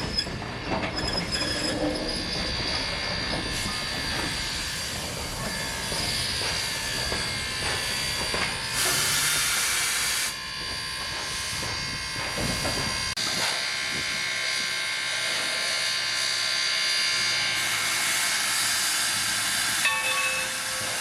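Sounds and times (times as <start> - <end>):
wheel squeal: 0.0 - 8.1
steam locomotive running: 0.0 - 21.0
steam hissing: 3.5 - 13.6.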